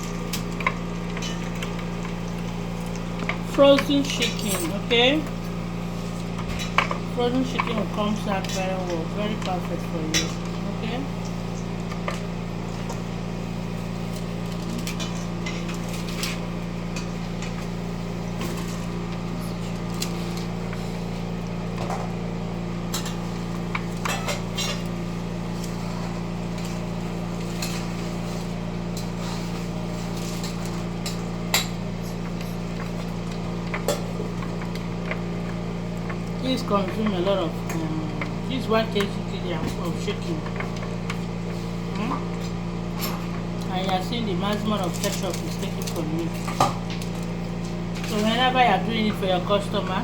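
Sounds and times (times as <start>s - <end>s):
utensils clinking against dishes: 2.9s - 5.3s, 6.4s - 10.9s, 22.9s - 25.0s, 27.4s - 33.1s, 42.0s - 47.4s.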